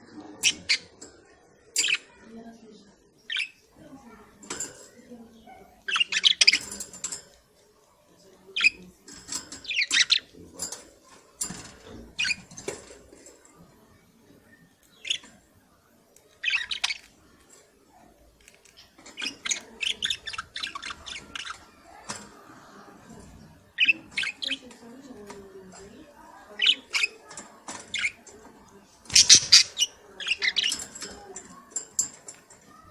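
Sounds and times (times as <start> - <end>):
budgerigars chirping and squawking: 0.4 - 1.0, 1.7 - 2.2, 3.2 - 3.6, 5.4 - 7.1, 8.6 - 10.8, 11.4 - 13.0, 14.9 - 15.4, 16.3 - 17.2, 18.8 - 25.3, 26.5 - 28.4, 29.1 - 32.2.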